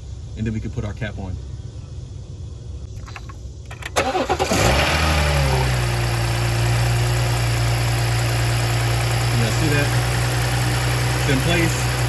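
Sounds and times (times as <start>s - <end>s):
car engine starting and idling: 2.9s - 12.0s.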